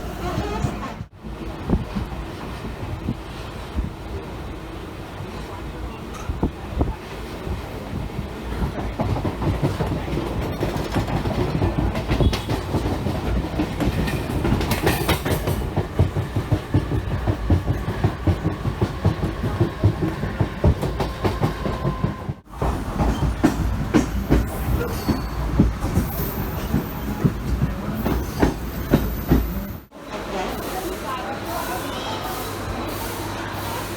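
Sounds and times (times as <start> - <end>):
low train rumble: 0.0 - 33.9
train wheels clattering on rails: 6.0 - 29.9.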